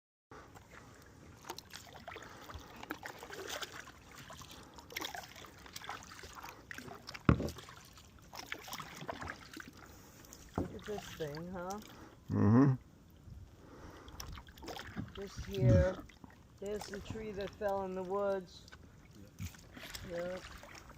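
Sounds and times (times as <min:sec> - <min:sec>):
paddle dipping and dripping: 0:00.4 - 0:20.9
small splashes: 0:00.6 - 0:12.0, 0:13.9 - 0:20.9.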